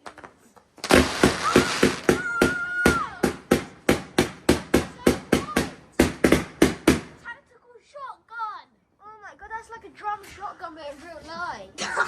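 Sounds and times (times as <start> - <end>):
firework crackle: 0.0 - 3.0
firework bangs: 0.8 - 7.2.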